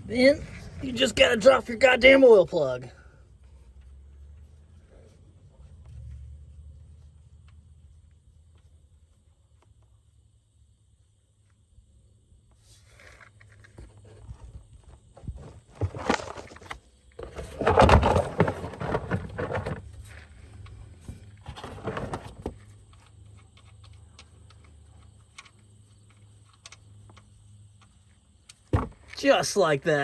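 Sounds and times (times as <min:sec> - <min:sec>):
clattering handling noise: 0:13.1 - 0:25.5.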